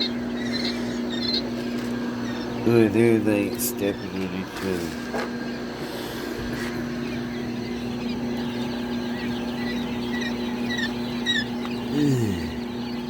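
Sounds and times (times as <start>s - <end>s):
chicks peeping: 0.0s - 13.0s
steady low hum: 0.0s - 13.0s.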